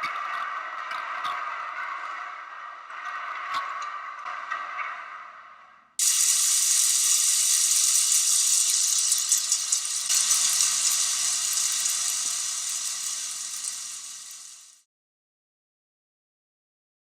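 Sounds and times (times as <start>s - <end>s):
motor-driven elements crackling hiss: 6.0s - 14.8s.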